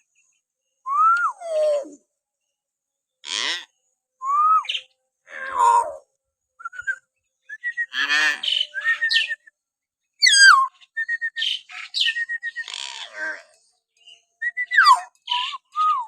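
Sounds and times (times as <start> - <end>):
myna whistling and calling: 6.6 - 9.5, 10.2 - 12.7, 14.4 - 16.0.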